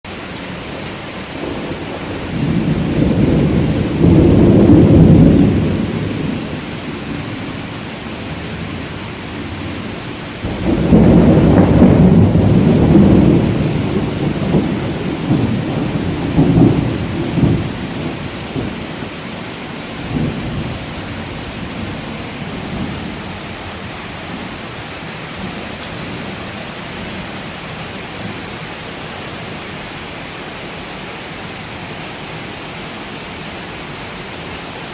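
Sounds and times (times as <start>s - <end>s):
heavy rain hissing: 0.1s - 34.9s
thunder rolling: 1.4s - 7.6s, 9.4s - 19.1s, 19.8s - 24.5s.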